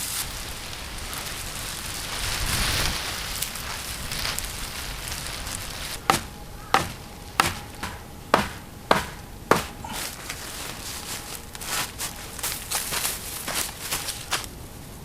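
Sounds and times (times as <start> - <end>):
chopping strikes on wood: 6.1 - 9.9.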